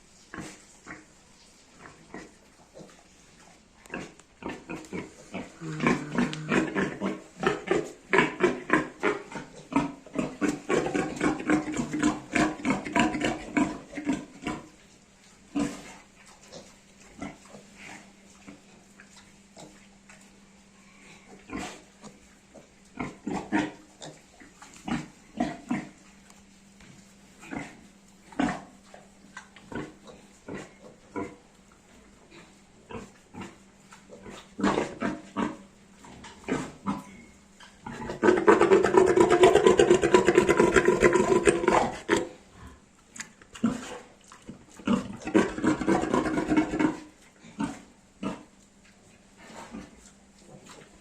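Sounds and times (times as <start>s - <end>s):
piglet grunting: 4.0s - 9.0s, 37.9s - 42.8s.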